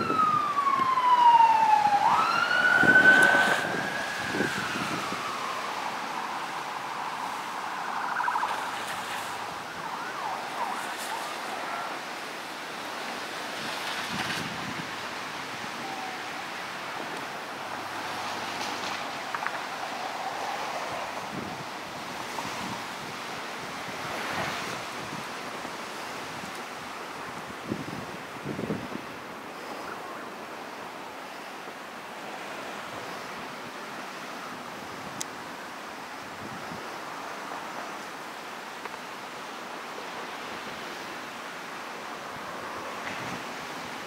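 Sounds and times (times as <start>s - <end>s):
emergency vehicle siren wailing: 0.0s - 12.2s, 13.0s - 25.2s
outdoor wind: 0.0s - 44.0s.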